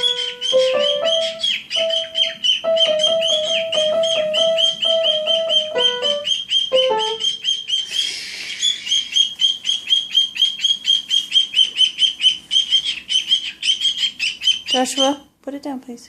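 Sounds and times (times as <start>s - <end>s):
low musical notes: 0.0s - 7.3s
cockatiel chirping: 0.0s - 15.3s.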